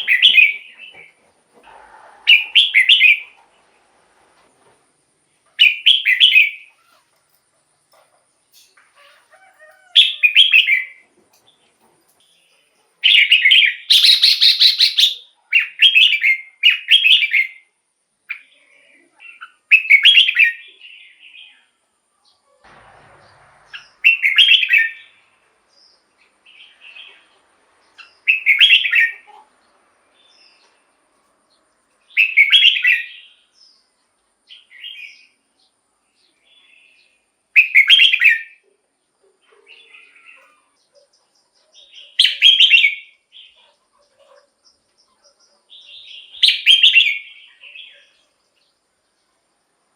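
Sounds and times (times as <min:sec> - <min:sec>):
bulbul singing: 0:12.3 - 0:17.7, 0:23.2 - 0:29.4, 0:32.0 - 0:33.9, 0:39.7 - 0:43.7, 0:44.6 - 0:48.8.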